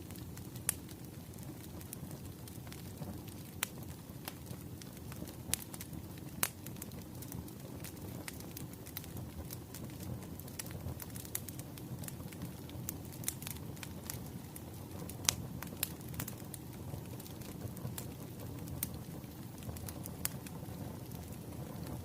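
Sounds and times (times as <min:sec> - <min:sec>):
firewood crackling and popping: 0:00.0 - 0:22.0
low rumble of fire: 0:00.0 - 0:22.0.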